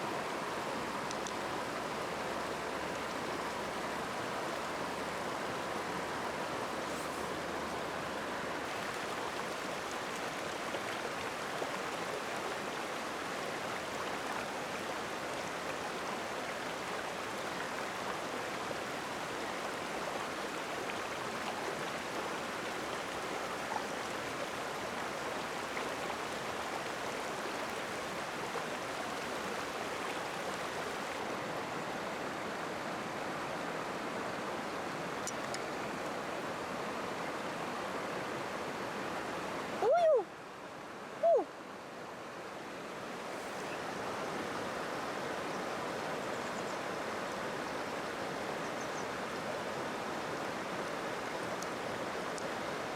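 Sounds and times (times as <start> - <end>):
water flowing over stones: 0.0 - 46.3, 49.2 - 52.9
faint ticks: 1.0 - 1.4, 35.2 - 35.8.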